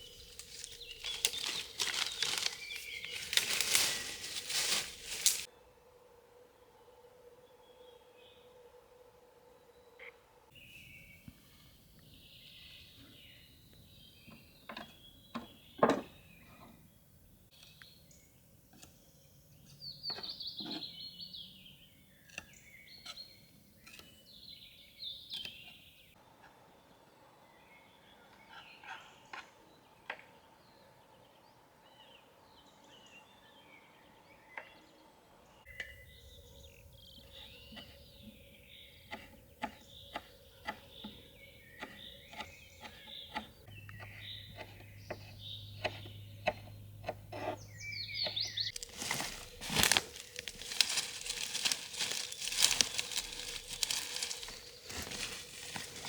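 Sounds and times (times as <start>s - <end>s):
birds chirping and calling: 0.0s - 5.5s, 19.6s - 26.1s, 35.7s - 56.0s.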